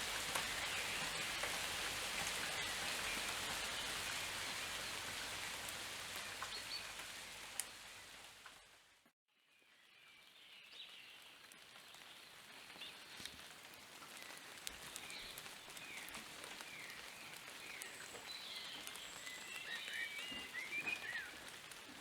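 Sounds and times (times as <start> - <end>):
rain falling: 0.0 - 9.1, 9.8 - 22.0.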